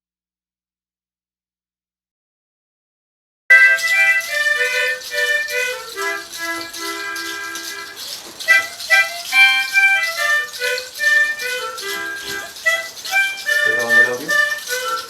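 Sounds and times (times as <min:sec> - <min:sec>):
flute melody: 0:03.5 - 0:15.0
shaker rattle: 0:03.7 - 0:15.0.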